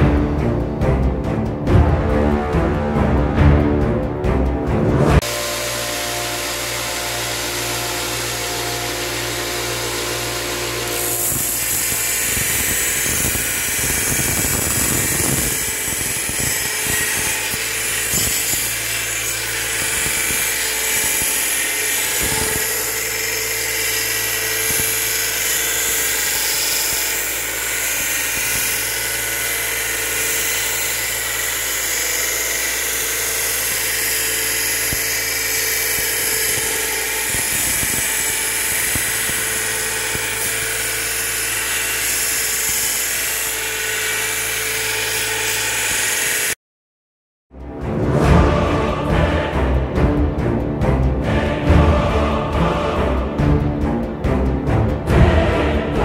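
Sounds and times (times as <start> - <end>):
power tool running: 5.2 - 46.6.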